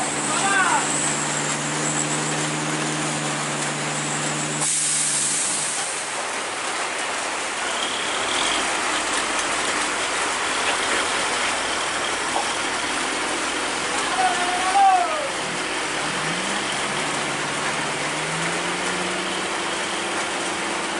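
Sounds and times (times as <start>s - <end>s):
heavy vehicle engine hum: 0.0s - 20.9s
road and traffic rumble: 0.0s - 20.9s
burst of hiss: 4.6s - 6.0s.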